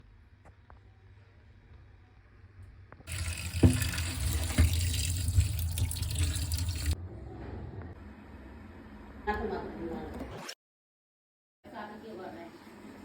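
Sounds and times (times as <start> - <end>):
tap water running into sink: 3.1 - 7.0.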